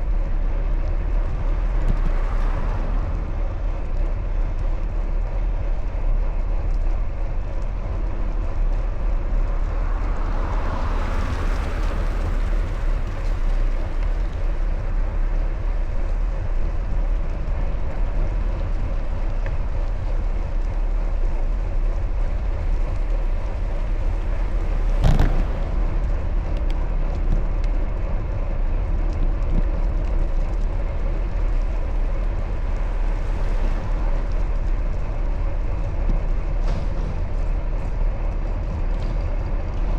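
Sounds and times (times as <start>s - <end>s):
wind rumble on microphone: 0.0s - 39.9s
vehicle passing: 31.1s - 39.4s.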